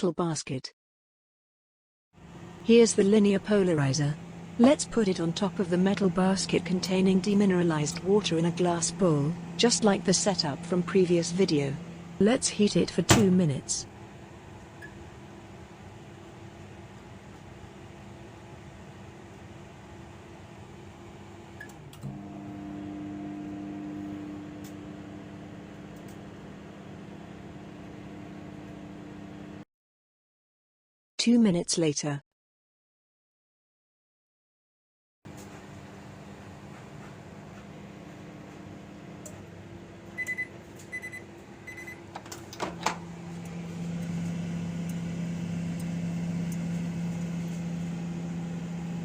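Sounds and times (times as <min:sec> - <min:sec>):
microwave humming: 0:02.2 - 0:29.6, 0:35.3 - 0:49.0
microwave thump: 0:13.0 - 0:13.4
microwave beep: 0:14.8 - 0:15.1, 0:40.1 - 0:42.1.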